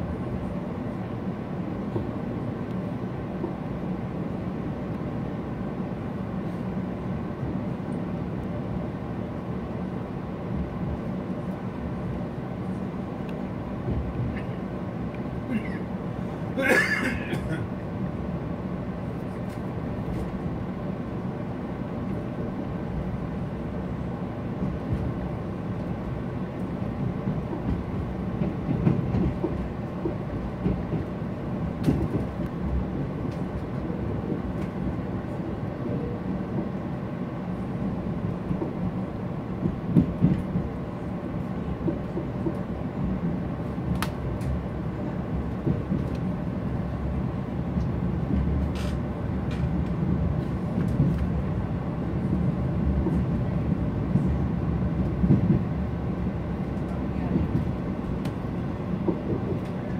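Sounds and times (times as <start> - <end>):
train rumbling on rails: 0.0 - 59.9
rail clicks: 24.6 - 36.8, 39.6 - 40.8, 41.4 - 44.7, 45.3 - 46.5, 47.7 - 51.6, 52.3 - 59.9.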